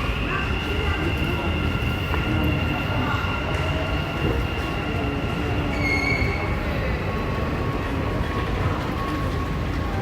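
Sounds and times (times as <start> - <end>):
high squeal: 5.6 - 6.6.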